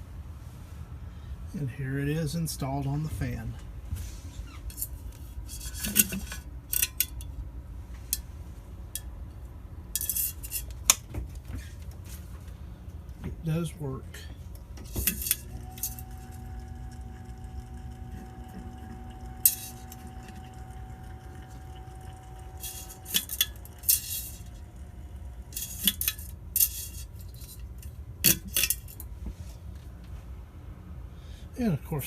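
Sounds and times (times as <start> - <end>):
glass ringing tone: 15.5 - 24.9.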